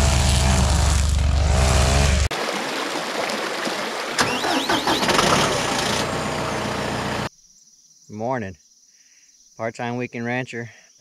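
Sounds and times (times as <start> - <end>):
engine deep hum: 0.0 - 2.3, 4.3 - 7.3
rough noisy engine: 0.0 - 2.3, 4.2 - 7.3.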